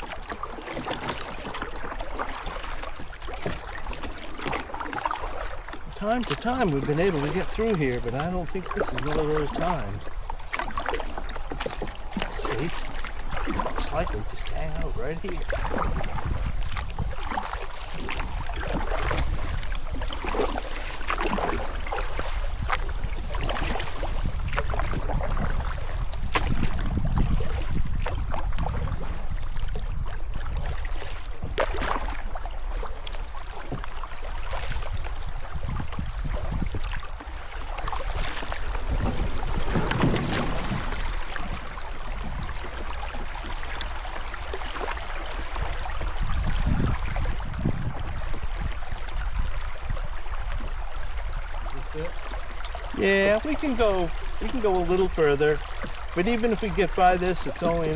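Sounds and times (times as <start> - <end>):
river water rushing: 0.0 - 15.9, 36.9 - 47.3, 50.1 - 57.9
wind rumble on microphone: 0.0 - 57.9.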